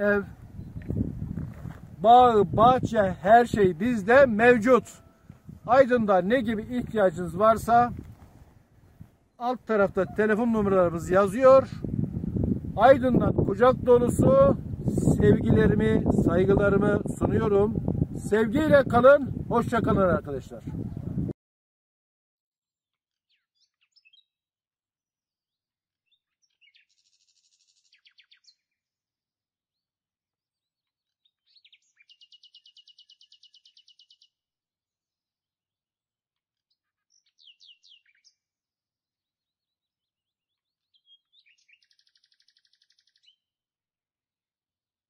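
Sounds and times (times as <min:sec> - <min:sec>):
songbird singing with trills: 0:00.6 - 0:00.9, 0:23.3 - 0:24.4, 0:26.0 - 0:28.8, 0:30.5 - 0:34.4, 0:36.7 - 0:38.4, 0:39.3 - 0:43.5.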